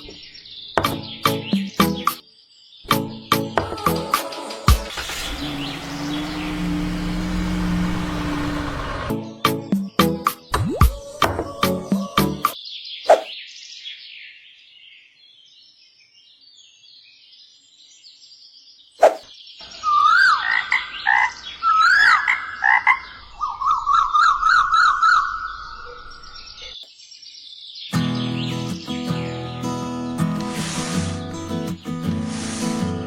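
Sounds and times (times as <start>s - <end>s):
animal chirps and calls: 19.0s - 26.8s.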